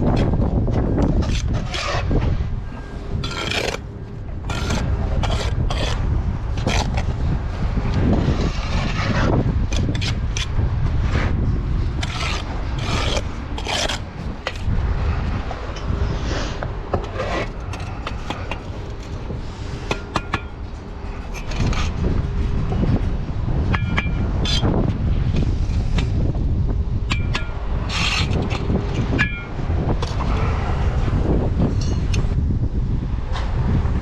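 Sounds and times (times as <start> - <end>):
wind rumble on microphone: 0.0 - 34.0
steel trowel scraping mortar: 0.9 - 2.2, 2.8 - 7.2, 8.3 - 14.7, 16.2 - 19.3, 21.1 - 22.1, 27.1 - 29.2.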